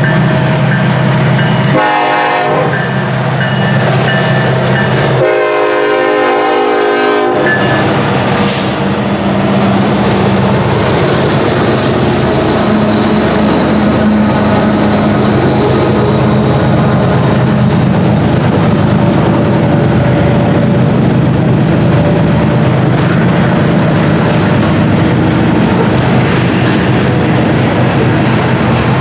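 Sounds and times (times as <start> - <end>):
locomotive air horn blasts: 1.7 - 2.9, 5.2 - 7.7.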